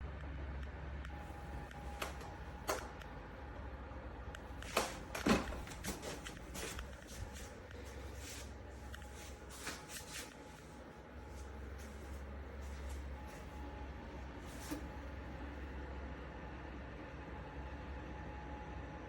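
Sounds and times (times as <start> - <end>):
steady low hum: 0.8 - 16.1
objects being handled: 1.4 - 3.0, 4.6 - 13.6.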